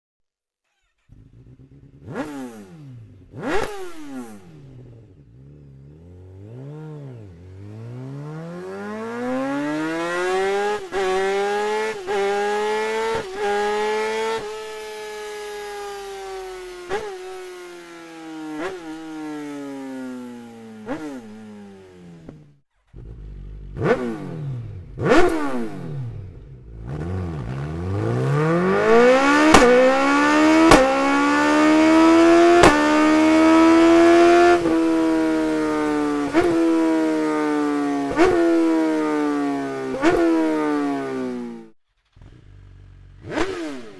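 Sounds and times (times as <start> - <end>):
motorcycle engines revving high: 0.7 - 43.9
sharp exhaust cracks: 22.9 - 36.9.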